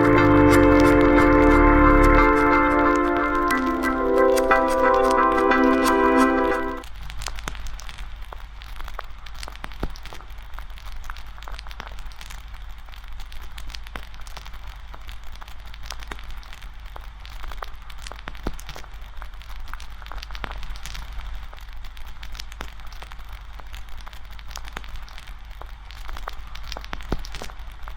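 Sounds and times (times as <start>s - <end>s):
steady low rumble: 0.0s - 3.9s.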